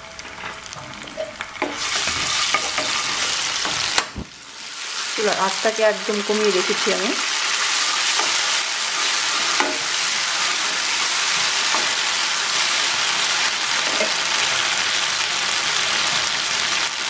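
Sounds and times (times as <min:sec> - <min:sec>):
onion sizzling in oil: 0:00.0 - 0:17.0
wooden spatula knocking pan: 0:09.6 - 0:09.9.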